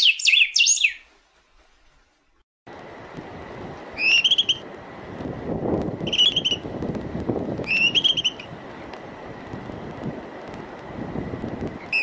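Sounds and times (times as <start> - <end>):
songbird singing: 0.0 - 1.1, 4.0 - 4.6, 6.0 - 6.7, 7.6 - 8.5
low background rumble: 2.7 - 12.0.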